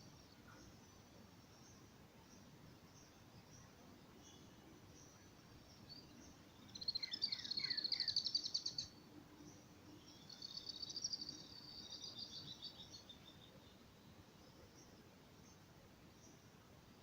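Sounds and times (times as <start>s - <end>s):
songbird trilling: 6.7s - 8.9s.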